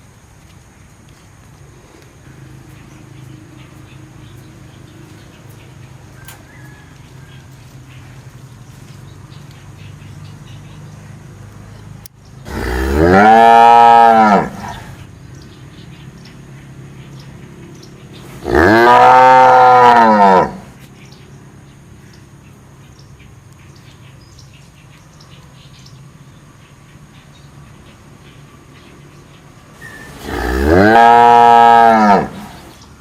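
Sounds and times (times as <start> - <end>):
cow mooing: 12.5 - 15.0, 18.4 - 20.7, 30.0 - 32.7.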